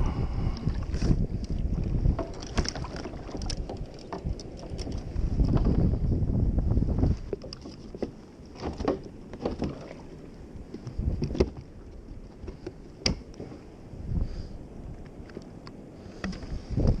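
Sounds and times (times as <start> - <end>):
water knocking against kayak hull: 1.8 - 5.9.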